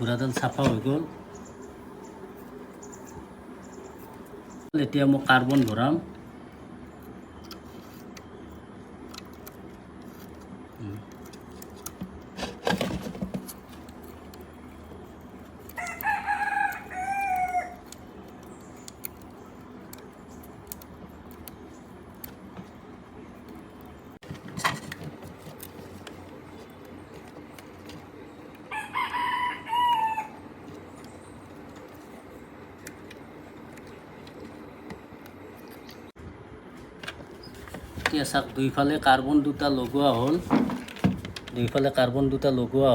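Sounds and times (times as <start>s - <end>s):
rooster crowing: 15.8s - 17.9s, 28.7s - 30.5s.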